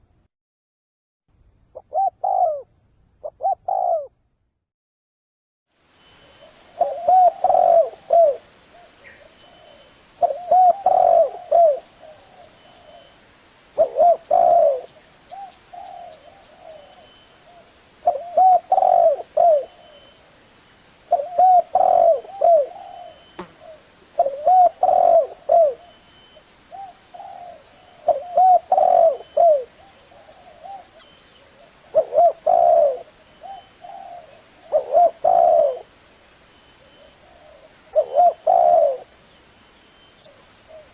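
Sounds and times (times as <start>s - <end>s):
dove cooing: 1.8s - 4.1s, 6.4s - 13.1s, 13.8s - 20.2s, 21.1s - 26.0s, 26.7s - 35.9s, 36.8s - 39.2s, 40.2s - 40.9s.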